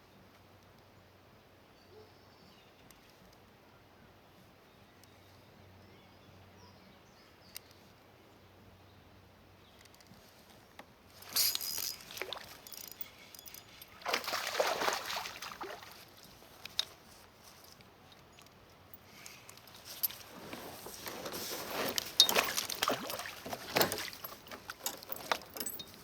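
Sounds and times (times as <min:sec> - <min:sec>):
water splashing: 0:11.2 - 0:16.3, 0:21.9 - 0:25.2.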